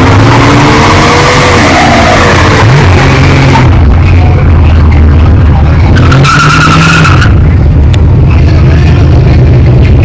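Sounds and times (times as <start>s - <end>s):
car engine revving hard: 0.0s - 3.9s.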